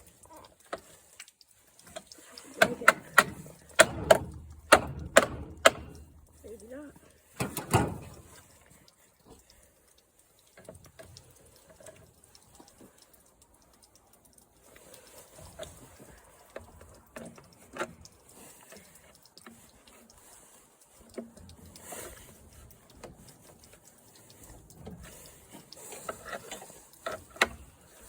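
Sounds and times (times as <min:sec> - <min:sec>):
clicks and knocks on lawn mower: 0:01.8 - 0:06.4, 0:07.4 - 0:08.5, 0:21.0 - 0:28.0.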